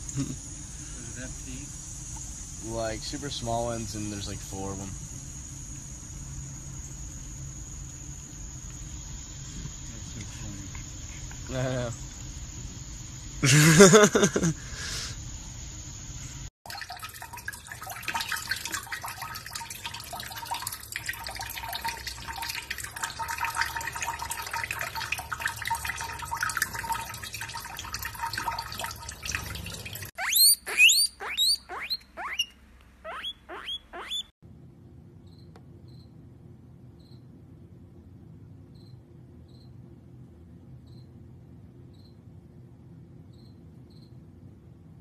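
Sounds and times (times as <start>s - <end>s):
tap water splashing into sink: 16.7s - 30.1s
high rising squeaks: 30.2s - 34.3s.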